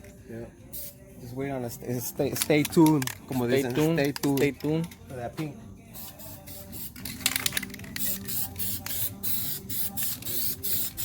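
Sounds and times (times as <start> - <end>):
spray paint can bursts: 0.7 - 1.0, 6.0 - 11.0.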